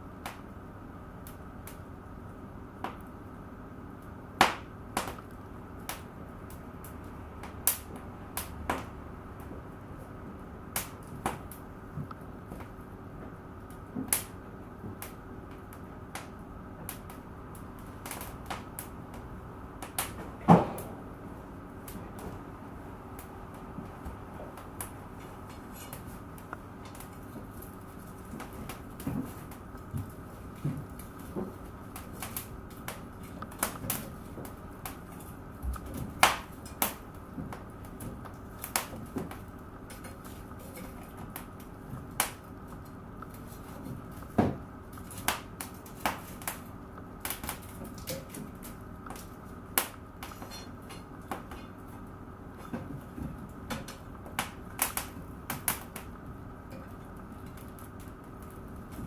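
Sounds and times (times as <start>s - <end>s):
low background hum: 0.0s - 59.0s
wood fire crackling: 0.0s - 59.0s
sharp pops and snaps: 0.2s - 0.5s, 4.0s - 9.6s, 10.7s - 12.8s, 13.6s - 20.3s, 24.6s - 51.6s, 53.6s - 59.0s.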